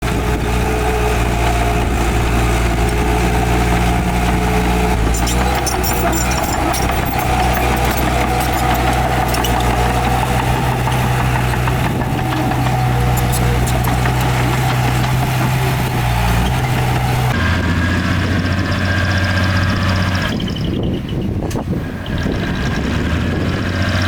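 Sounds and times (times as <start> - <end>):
heavy diesel engine running: 0.0 - 24.0
metallic clinks and rattles: 5.0 - 15.6.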